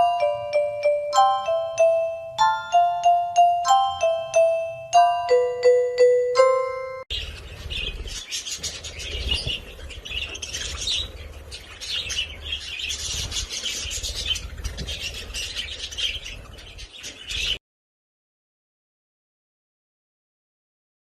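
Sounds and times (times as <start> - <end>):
parrots chirping and chattering: 7.1 - 17.6.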